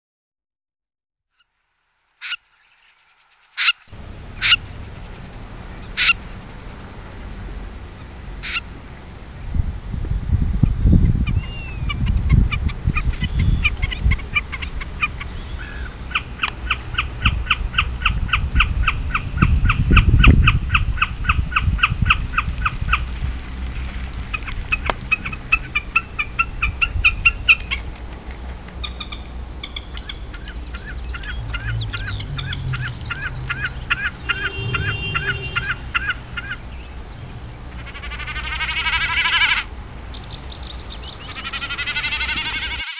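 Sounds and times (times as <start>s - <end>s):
wild birds calling: 2.2s - 9.6s, 10.6s - 42.9s
low rumble: 30.2s - 37.8s.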